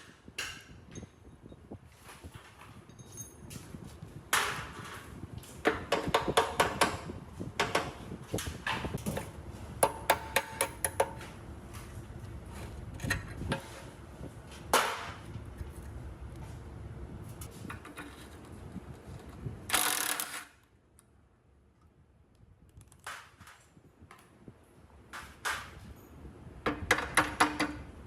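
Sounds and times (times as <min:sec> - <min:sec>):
metal knocks and clinks: 0:02.8 - 0:03.6.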